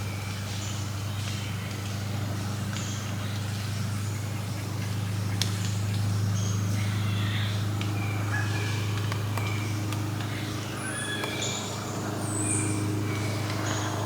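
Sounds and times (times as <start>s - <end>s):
steady low drone: 1.3s - 14.0s
birds whistling: 10.6s - 12.8s.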